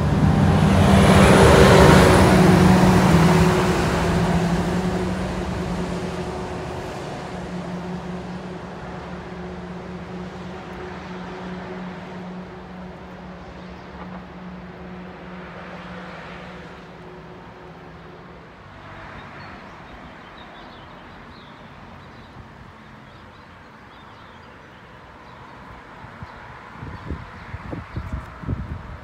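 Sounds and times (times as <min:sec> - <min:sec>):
train engine hum and rumble: 0:00.0 - 0:19.1
faint outdoor noise: 0:00.0 - 0:29.0.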